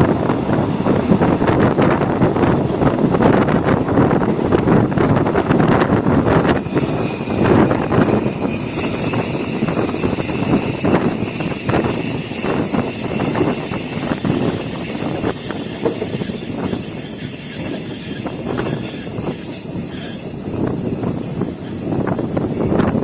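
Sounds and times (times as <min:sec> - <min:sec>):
train wheels rumbling on track: 0:00.0 - 0:23.0
steady high whine: 0:04.9 - 0:23.0.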